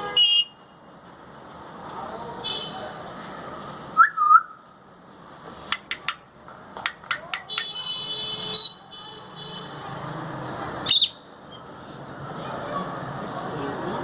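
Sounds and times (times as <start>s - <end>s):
parrot beak clicks: 5.7s - 6.2s.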